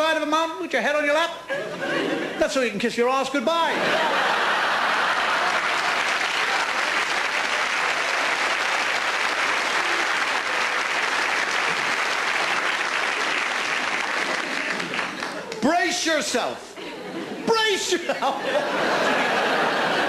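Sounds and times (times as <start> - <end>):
audience applauding: 4.4 - 15.7.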